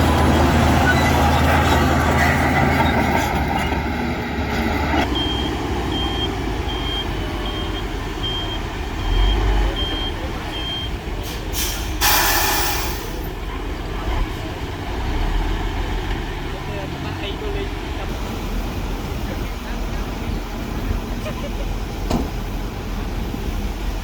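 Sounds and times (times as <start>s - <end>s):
dump truck engine running: 0.0s - 24.0s
reversing alarm beeping: 5.0s - 11.0s
air brakes hissing: 11.2s - 13.3s.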